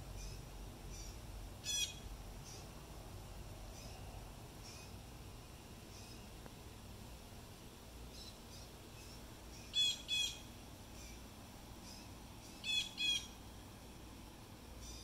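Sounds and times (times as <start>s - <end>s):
bird chirping: 0.1s - 2.8s, 3.6s - 5.0s, 5.8s - 6.4s, 8.1s - 13.4s, 14.8s - 15.0s.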